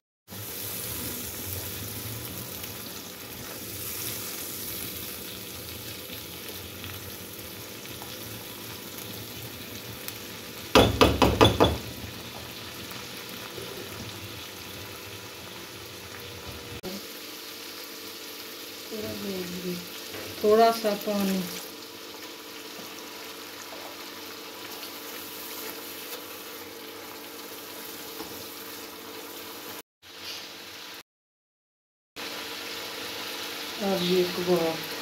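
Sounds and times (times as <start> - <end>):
spices frying with sizzle: 0.3 - 31.0, 32.2 - 35.0
loud knocks: 10.8 - 11.8.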